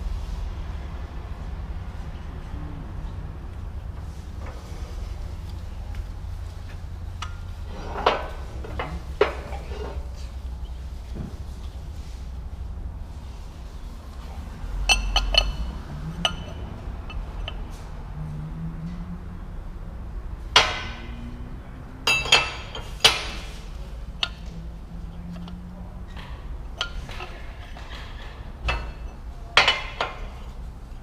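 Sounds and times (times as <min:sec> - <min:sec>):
low steady hum: 0:00.0 - 0:31.0
metal tools clinking: 0:14.8 - 0:17.7, 0:22.1 - 0:24.5, 0:25.2 - 0:30.4.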